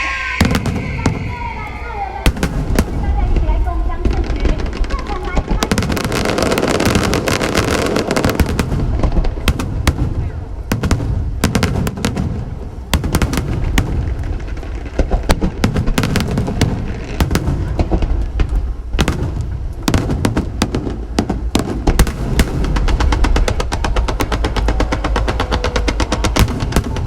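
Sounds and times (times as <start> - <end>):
low rumble: 0.0 - 5.9
fireworks bangs and cracks: 0.0 - 27.0.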